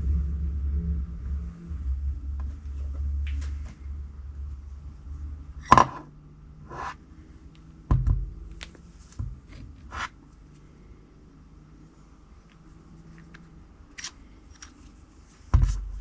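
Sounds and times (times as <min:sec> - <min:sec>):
hard objects knocking and clicking: 0:05.7 - 0:06.1.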